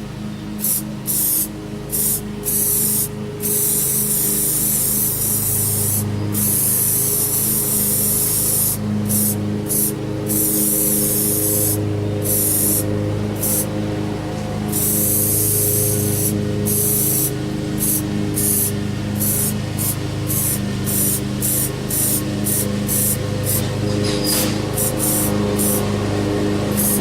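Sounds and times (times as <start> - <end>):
lawn mower engine droning: 0.0 - 27.0
loud hiss: 0.6 - 12.8, 13.4 - 13.7, 14.7 - 25.9, 26.7 - 27.0.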